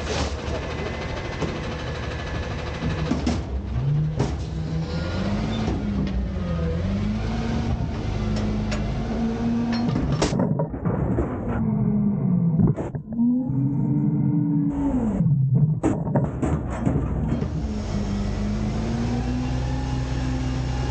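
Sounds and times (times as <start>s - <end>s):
truck diesel engine revving: 0.8s - 9.9s, 17.4s - 20.9s.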